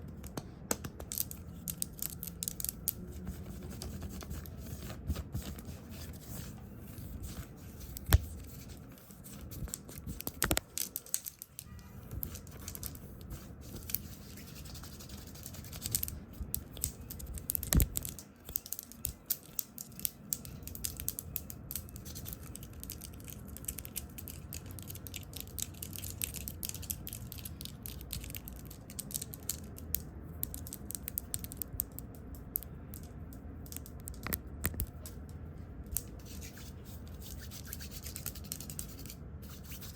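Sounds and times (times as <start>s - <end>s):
clicks and scratches: 0.1s - 39.9s.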